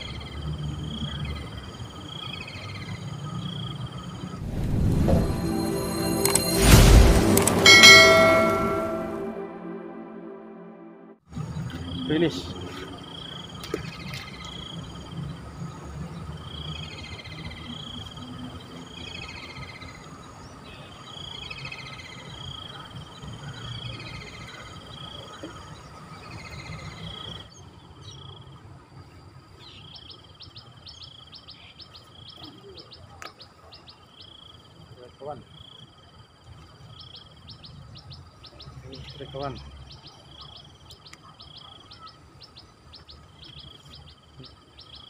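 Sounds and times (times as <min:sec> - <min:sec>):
steady high bird note: 0:04.4 - 0:11.2.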